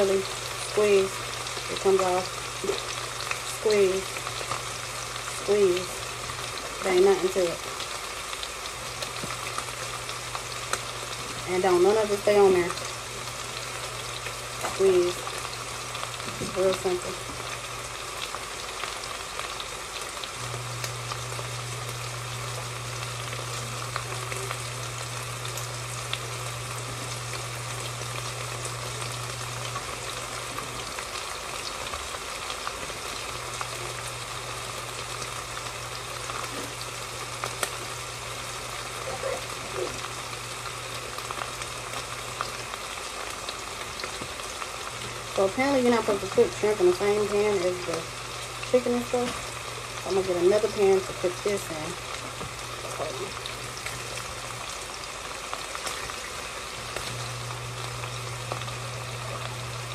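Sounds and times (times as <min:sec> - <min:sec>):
chicken sizzling in pan: 0:00.0 - 0:59.9
low steady hum: 0:20.2 - 0:31.7, 0:43.5 - 0:55.0.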